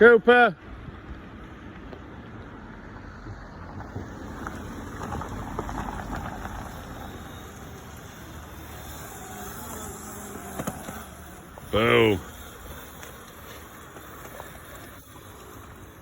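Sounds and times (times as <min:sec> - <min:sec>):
wind rumbling on microphone: 0:00.6 - 0:07.7
rough crackling rustle: 0:01.0 - 0:16.0.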